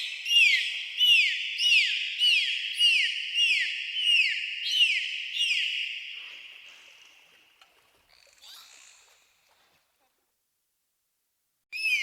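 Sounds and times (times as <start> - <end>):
animal high chirping calls: 11.8 - 12.0.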